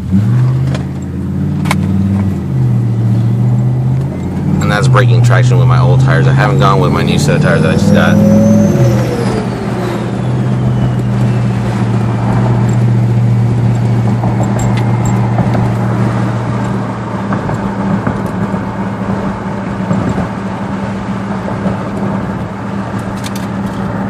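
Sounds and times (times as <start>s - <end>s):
car engine droning at cruise: 0.0s - 24.0s
tyre and road noise: 0.0s - 24.0s.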